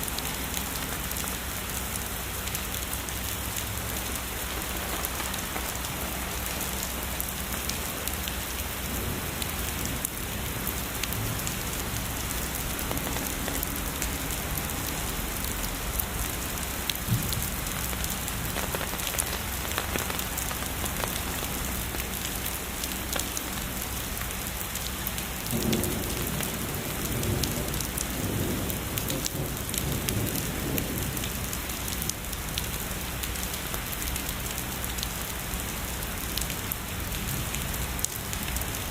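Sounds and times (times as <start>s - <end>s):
heavy rain falling: 0.0s - 38.9s
distant thunder rumbling: 1.0s - 22.2s, 25.4s - 31.6s.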